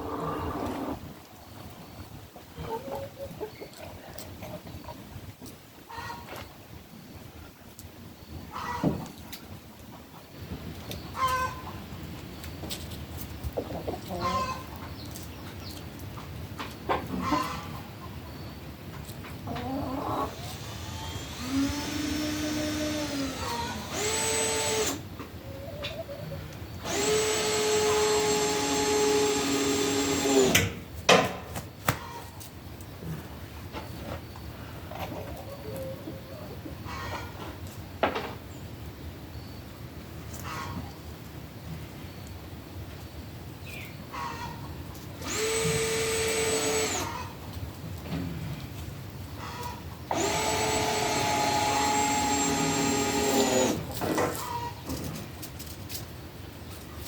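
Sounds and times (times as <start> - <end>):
power drill running: 21.0 - 25.0, 26.8 - 30.6, 45.2 - 47.1, 50.1 - 53.8.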